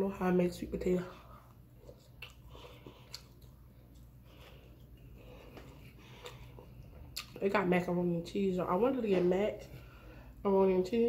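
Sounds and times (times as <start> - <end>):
person chewing food: 1.1 - 7.4
wet mouth clicks: 1.8 - 4.1.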